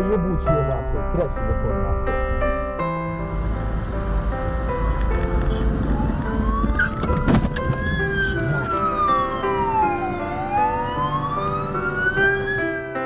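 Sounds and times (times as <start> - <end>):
background music: 0.0 - 13.0
ambulance siren wailing: 3.1 - 13.0.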